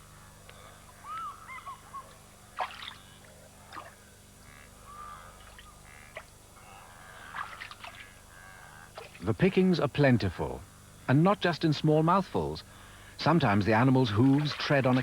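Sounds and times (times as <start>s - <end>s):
birds calling: 0.3s - 3.2s, 4.4s - 9.0s
water sounds: 13.3s - 15.0s.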